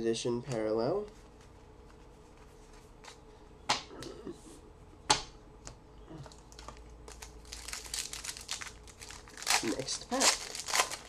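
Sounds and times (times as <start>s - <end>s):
pack wrapper crinkling: 6.5s - 11.0s.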